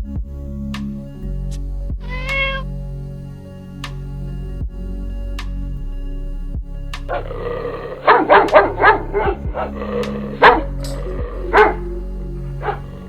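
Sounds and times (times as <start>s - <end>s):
background music: 0.0s - 13.0s
dog barking: 2.0s - 2.6s, 7.1s - 13.0s.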